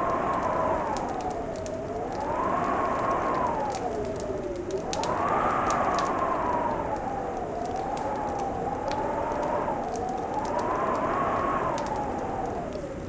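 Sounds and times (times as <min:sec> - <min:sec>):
fireplace crackling and popping: 0:00.0 - 0:13.0
howling wind: 0:00.0 - 0:13.0.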